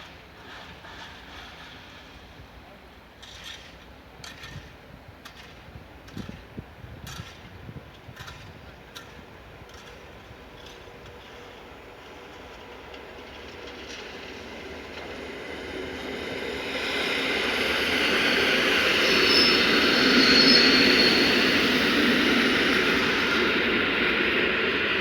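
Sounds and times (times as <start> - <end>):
train wheels on rails: 0.0 - 25.0
high-pitched wheel squeals: 16.6 - 23.5.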